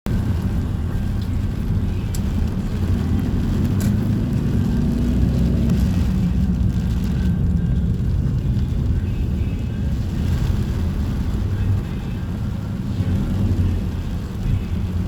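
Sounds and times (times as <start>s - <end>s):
heavy rain on a street: 0.1s - 15.0s
faint clicks: 2.0s - 2.4s.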